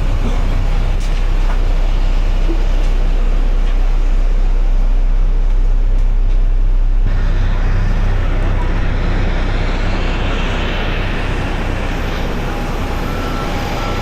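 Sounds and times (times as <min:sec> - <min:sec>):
aircraft low rumble: 0:00.0 - 0:14.0.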